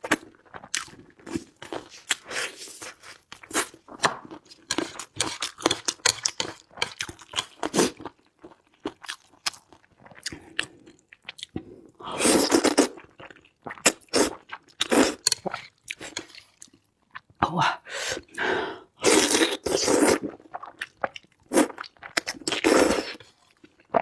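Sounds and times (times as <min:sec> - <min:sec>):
chewing crunchy food: 0:00.0 - 0:11.7, 0:12.3 - 0:17.4, 0:19.1 - 0:24.0.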